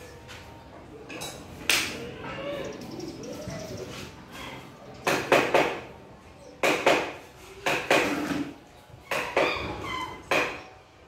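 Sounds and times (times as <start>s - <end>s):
sharp knocks in pairs: 5.0s - 5.9s, 6.6s - 8.2s, 10.3s - 10.7s.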